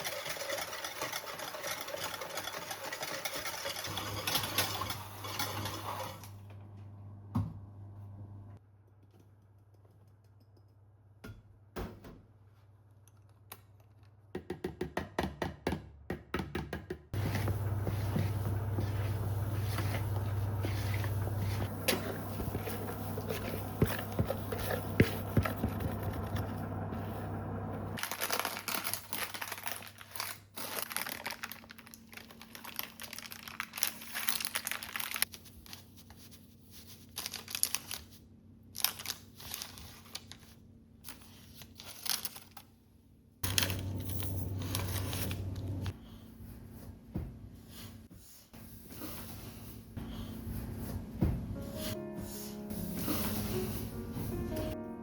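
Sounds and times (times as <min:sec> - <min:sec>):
crinkling and rustling: 0:17.2 - 0:38.2, 0:38.8 - 0:42.8, 0:43.4 - 0:45.9.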